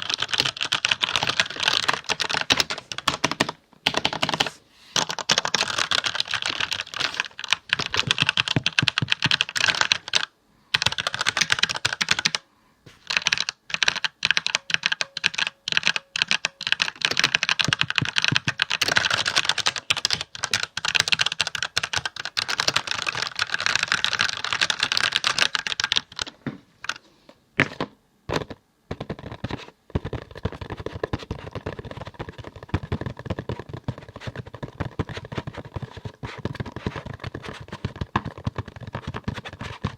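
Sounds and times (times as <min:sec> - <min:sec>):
fast typing on keyboard: 0:00.0 - 0:12.4, 0:13.0 - 0:27.0, 0:28.3 - 0:39.9.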